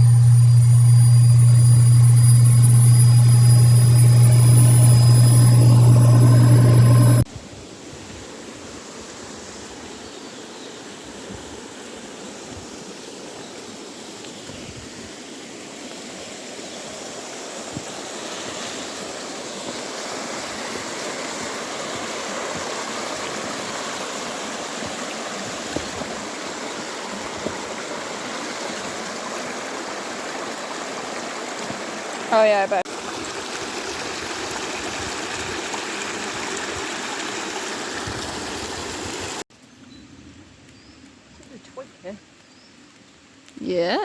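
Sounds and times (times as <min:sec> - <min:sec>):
stream water rushing: 0:15.4 - 0:39.4.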